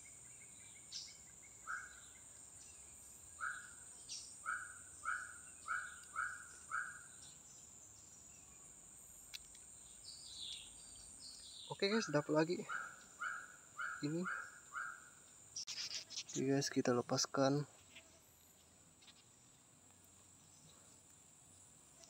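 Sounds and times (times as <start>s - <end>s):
high-pitched insect drone: 13.3s - 16.7s.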